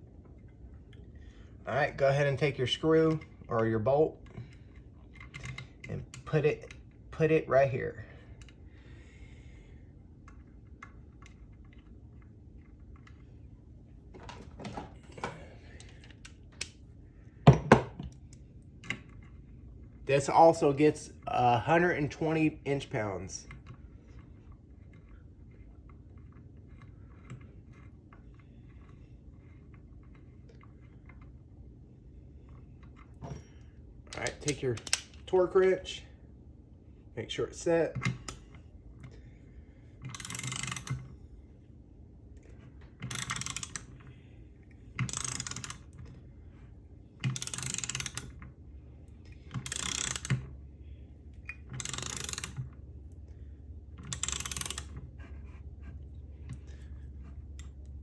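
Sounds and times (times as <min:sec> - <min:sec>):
low steady hum: 0:00.0 - 0:58.0
light clicks and taps of tools: 0:04.2 - 0:06.9, 0:17.5 - 0:19.4, 0:32.5 - 0:35.4, 0:54.0 - 0:58.0
torque wrench clicking: 0:34.1 - 0:35.3, 0:40.1 - 0:41.0, 0:43.0 - 0:44.0, 0:45.0 - 0:46.0, 0:47.2 - 0:48.4, 0:49.6 - 0:50.5, 0:51.4 - 0:52.6, 0:54.0 - 0:55.0.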